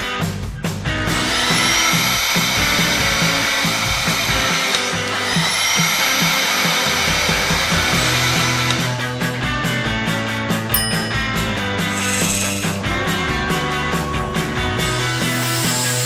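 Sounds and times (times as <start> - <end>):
background music with bass line: 0.0 - 16.0
whirring machine with rising whine: 1.1 - 9.1, 11.8 - 16.0.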